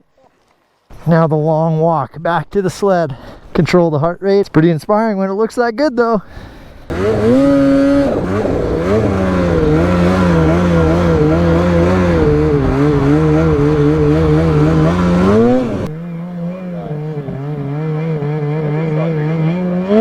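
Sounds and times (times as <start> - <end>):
snowmobile engine revving: 6.9 - 20.0.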